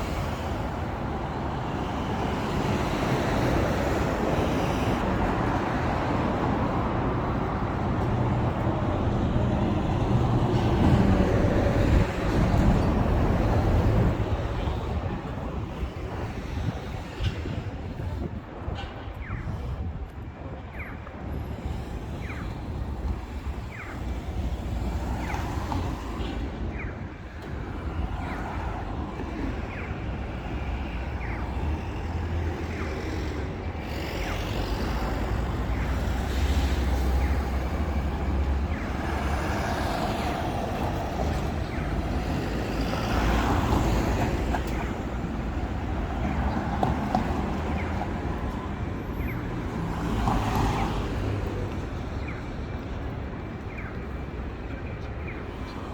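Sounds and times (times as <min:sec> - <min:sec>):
road traffic rumble: 0:00.0 - 0:55.9
heavy vehicles passing: 0:21.2 - 0:55.9.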